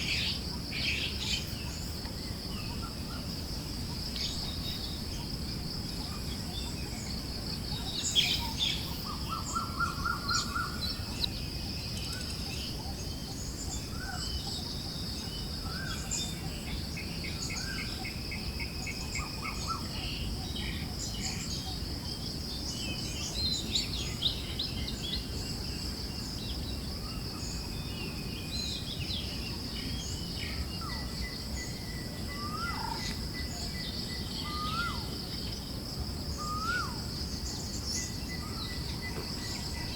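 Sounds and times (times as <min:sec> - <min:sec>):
birds chirping and trilling: 0:00.0 - 0:35.7, 0:36.3 - 0:39.9.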